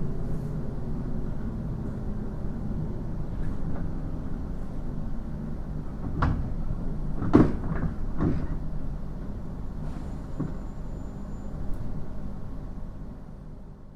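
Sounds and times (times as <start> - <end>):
train running gear hum: 0.0 - 13.9
clunks and knocks in train car: 5.9 - 9.4, 10.3 - 10.7.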